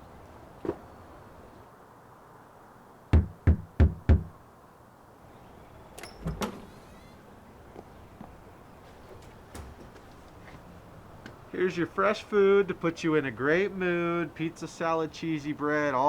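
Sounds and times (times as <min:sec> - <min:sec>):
knocks on a door: 0:03.2 - 0:04.3
door clunks: 0:09.2 - 0:09.9.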